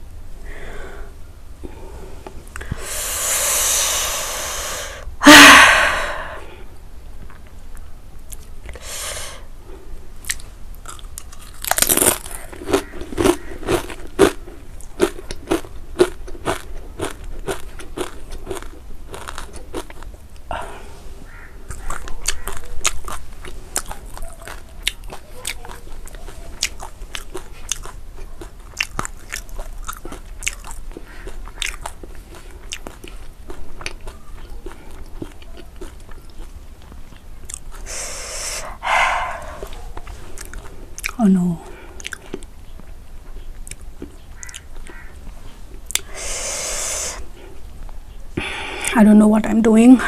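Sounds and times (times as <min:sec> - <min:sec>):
long hiss: 0:00.4 - 0:06.6, 0:08.8 - 0:09.5, 0:37.8 - 0:39.6, 0:46.0 - 0:47.2
crunchy chip chewing: 0:10.2 - 0:20.5, 0:21.3 - 0:41.2.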